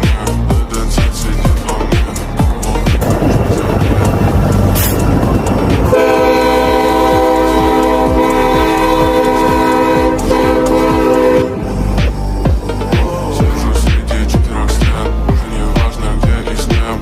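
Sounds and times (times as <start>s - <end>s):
locomotive air horn blast: 5.8s - 12.0s.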